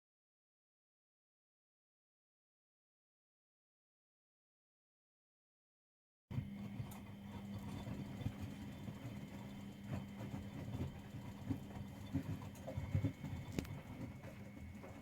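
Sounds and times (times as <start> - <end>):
washing machine motor hum: 6.3 - 15.0.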